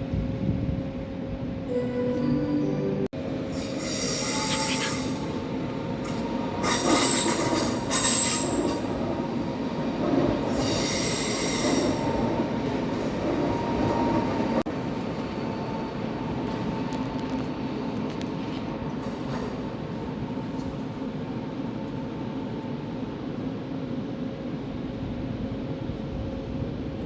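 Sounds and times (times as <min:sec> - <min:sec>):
moving train rumble: 0:00.0 - 0:27.0
train wheels squealing: 0:03.5 - 0:05.4, 0:06.6 - 0:08.9, 0:10.5 - 0:12.1.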